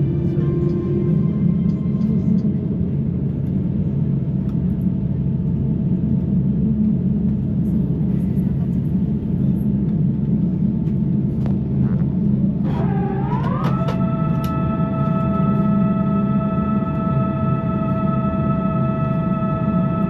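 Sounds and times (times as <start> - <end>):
airliner cabin rumble: 0.0 - 20.0
gliding sustained tone: 12.7 - 20.0.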